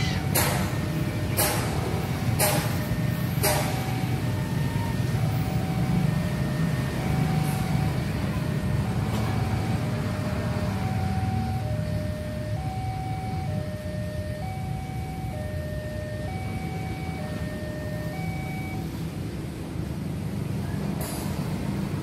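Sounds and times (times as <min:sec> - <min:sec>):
wheels clacking over rail joints: 0:00.0 - 0:04.2
passenger train rumbling: 0:00.0 - 0:22.0.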